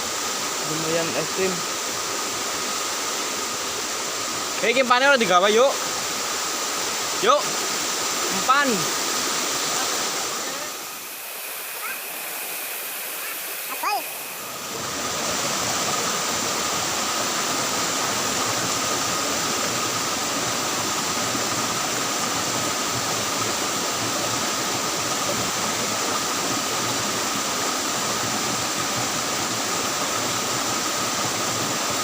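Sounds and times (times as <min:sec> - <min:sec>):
stream water flowing: 0:00.0 - 0:32.0
faint high-pitched tone: 0:10.5 - 0:14.4.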